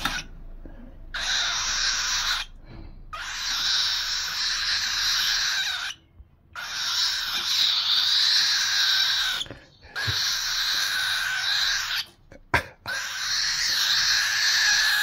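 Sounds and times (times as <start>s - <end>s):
parrot hissing: 6.6s - 12.1s, 12.9s - 15.0s.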